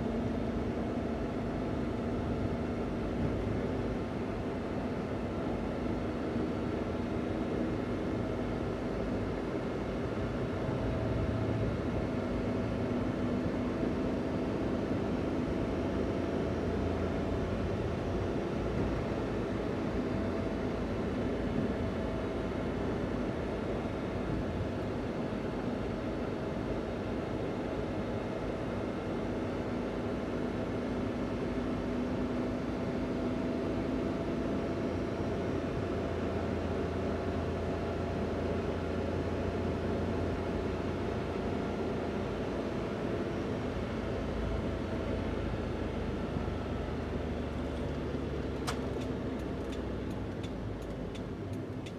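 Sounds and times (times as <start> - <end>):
small van engine running: 0.0 - 51.9
van engine running: 27.9 - 51.9
road rumble: 41.8 - 51.9.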